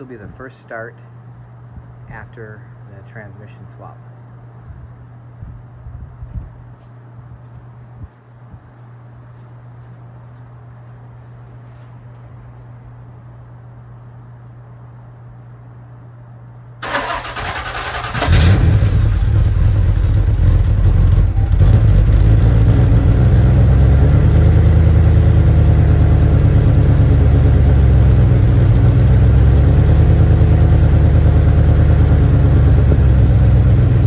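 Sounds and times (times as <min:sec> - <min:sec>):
engine cranking on starter: 0:16.8 - 0:24.7
car engine idling loudly: 0:18.3 - 0:34.0.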